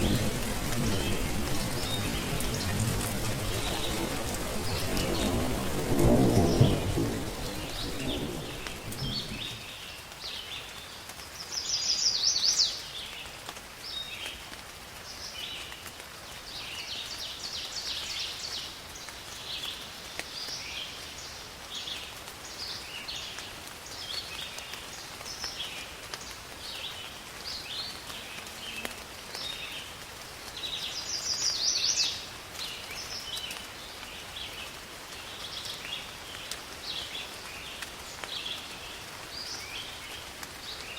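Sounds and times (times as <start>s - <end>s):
thunder rumble: 0.0s - 9.9s
birds chirping: 0.0s - 10.0s
rain hiss: 0.0s - 40.9s.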